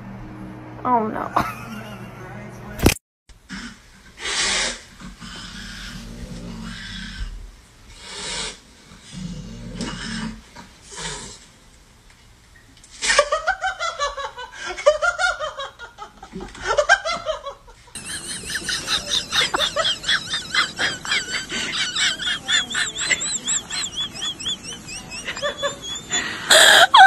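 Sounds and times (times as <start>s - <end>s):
laughter-like vocal sounds: 1.4s - 2.2s, 13.0s - 27.0s.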